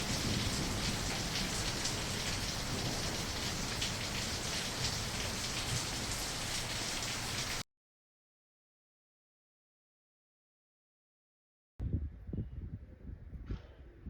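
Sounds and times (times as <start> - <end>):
steady rain falling: 0.0 - 7.6.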